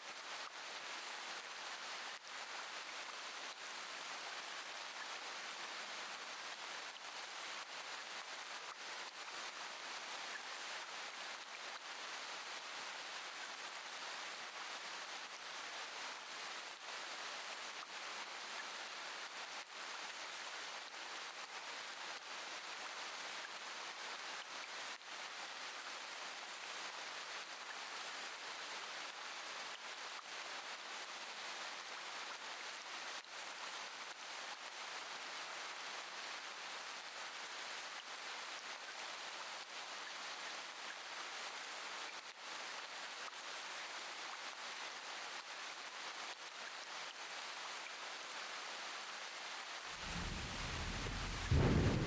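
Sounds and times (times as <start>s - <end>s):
steady rain falling: 0.1s - 52.0s.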